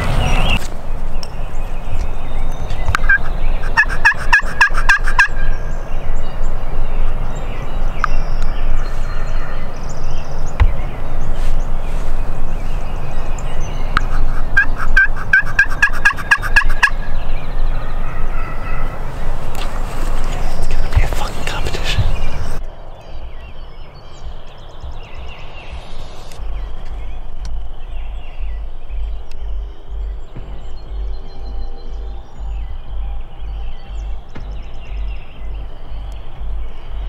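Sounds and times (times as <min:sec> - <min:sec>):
turkey gobbling: 0:03.0 - 0:05.5, 0:14.0 - 0:17.1.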